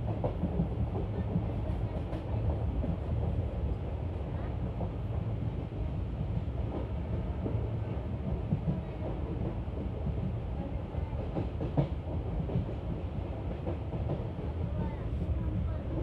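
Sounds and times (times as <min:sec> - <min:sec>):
rail joint clacks: 0:06.4 - 0:16.0.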